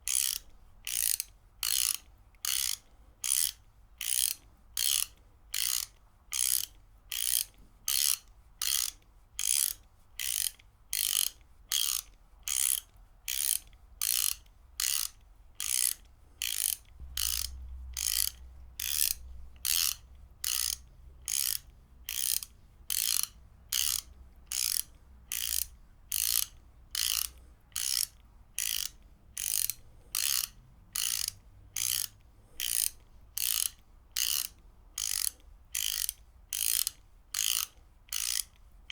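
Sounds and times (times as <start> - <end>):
ratchet wrench clicking: 0.1 - 38.6.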